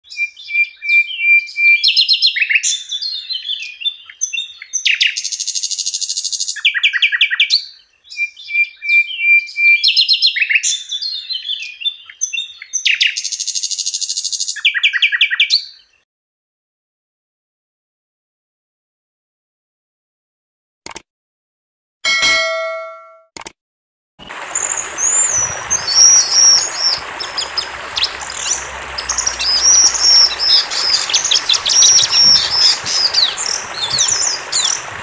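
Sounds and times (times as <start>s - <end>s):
bird singing chirps and trills: 24.5s - 35.0s.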